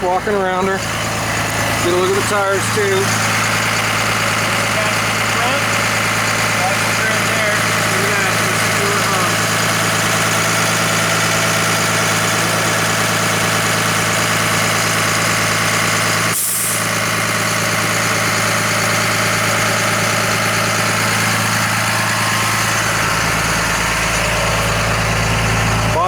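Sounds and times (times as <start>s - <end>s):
diesel bus engine idling: 0.0s - 26.0s.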